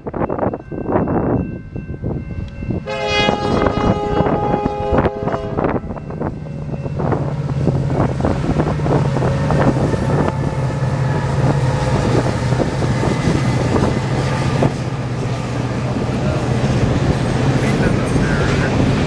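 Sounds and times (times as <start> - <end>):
locomotive engines humming: 0.2 - 19.0
train wheels clattering on track: 6.0 - 19.0.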